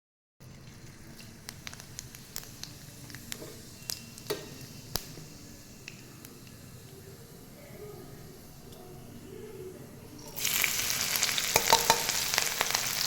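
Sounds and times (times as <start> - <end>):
food sizzling in a pan: 0.4 - 9.4, 10.0 - 13.0.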